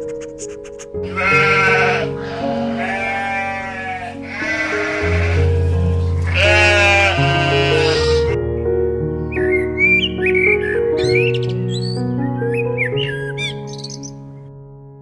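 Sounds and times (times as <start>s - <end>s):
background music sustained notes: 0.0s - 15.0s
animal bleating: 1.0s - 8.4s.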